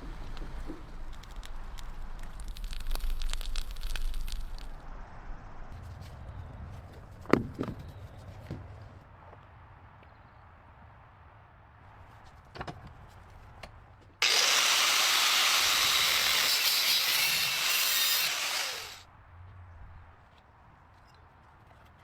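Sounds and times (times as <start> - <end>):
loud steady hiss: 14.2 - 19.0.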